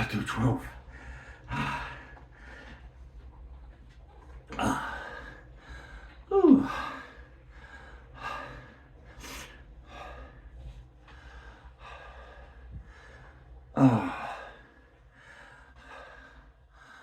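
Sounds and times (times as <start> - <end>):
man breathing hard: 0.8 - 2.9, 4.6 - 17.0
man groaning: 6.3 - 6.8, 13.8 - 14.3.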